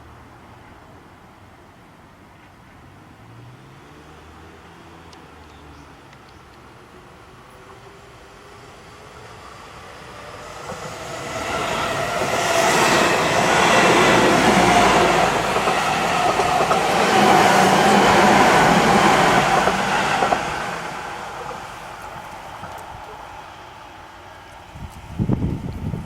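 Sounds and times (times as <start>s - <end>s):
electric train passing: 6.1s - 26.0s.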